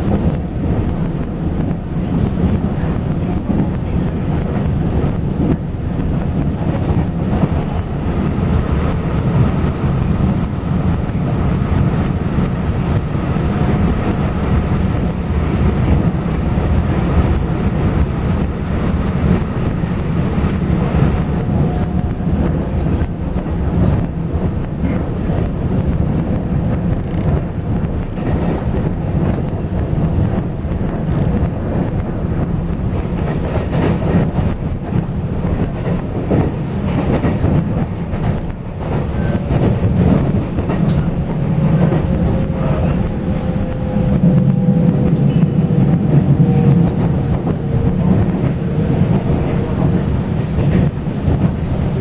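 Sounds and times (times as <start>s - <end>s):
train rumbling on rails: 0.0s - 52.0s.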